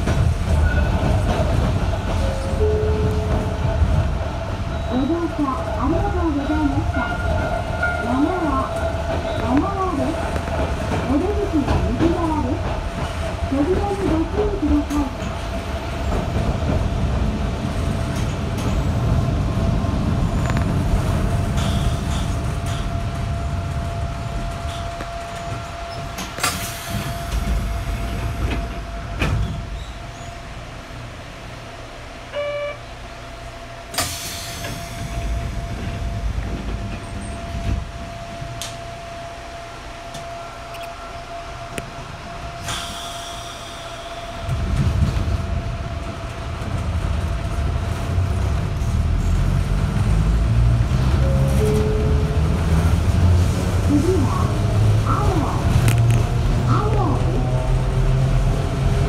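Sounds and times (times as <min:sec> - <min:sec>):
train running rumble: 0:00.0 - 0:59.0
short electronic beep: 0:32.3 - 0:32.8.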